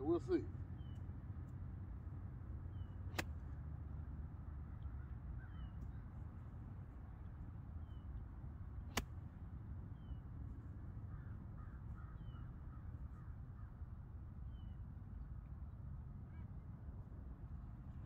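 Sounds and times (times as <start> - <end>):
bird chirping: 0.6 - 1.1, 2.6 - 3.0, 11.2 - 13.4
faint bird calls: 4.4 - 6.4, 9.9 - 15.0.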